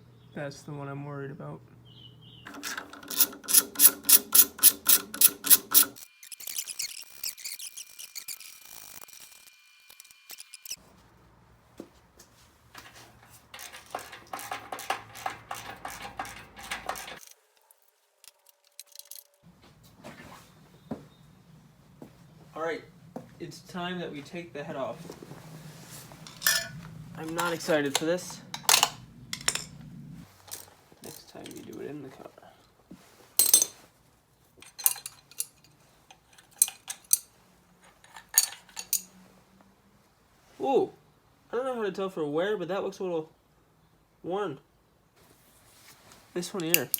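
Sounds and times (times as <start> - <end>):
metal tools clinking and rattling: 2.5 - 8.6, 12.7 - 17.4, 18.2 - 19.4, 26.2 - 32.3, 33.4 - 33.9, 34.6 - 39.2, 46.4 - 46.9.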